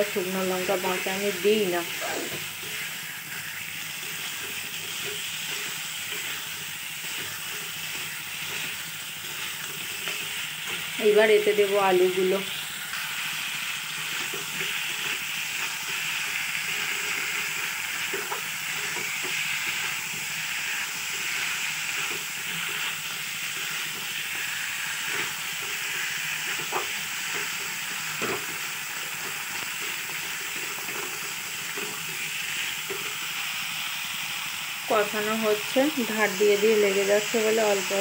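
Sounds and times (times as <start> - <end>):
food sizzling in oil: 0.0 - 38.0
spoon scraping metal pan: 0.6 - 10.9.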